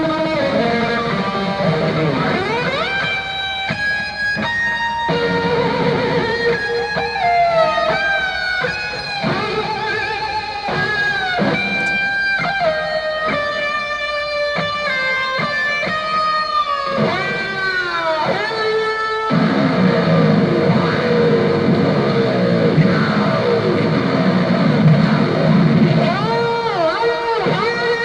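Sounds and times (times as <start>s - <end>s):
electric guitar lead melody: 0.0s - 28.0s.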